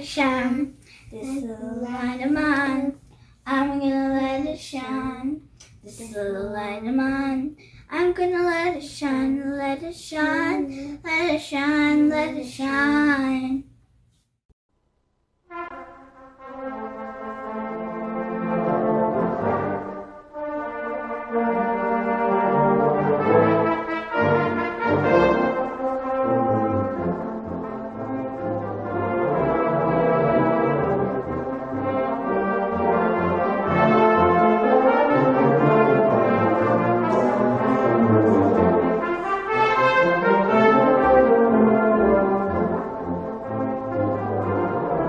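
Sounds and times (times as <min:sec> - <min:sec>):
brass ensemble playing chords: 0:15.5 - 0:45.0.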